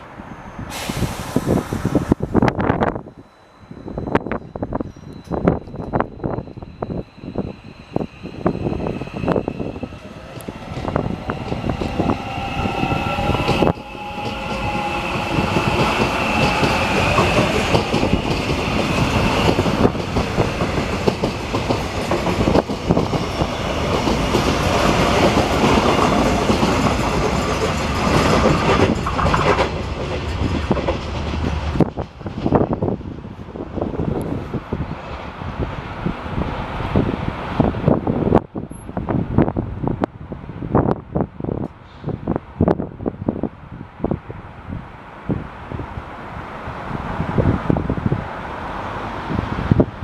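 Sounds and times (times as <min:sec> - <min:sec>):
train high whine: 0:00.0 - 0:39.9
train wheels knocking over track: 0:13.3 - 0:32.6.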